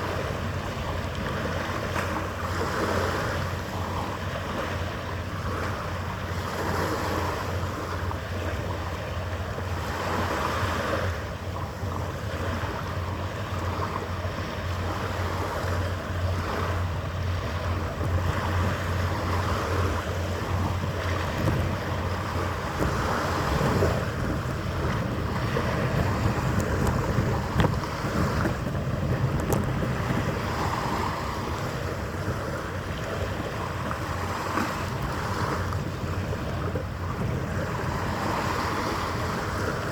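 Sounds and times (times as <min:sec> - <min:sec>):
harbour water washing: 0:00.0 - 0:39.9
wind gusting on microphone: 0:00.0 - 0:39.9
steady low hum: 0:07.3 - 0:39.9.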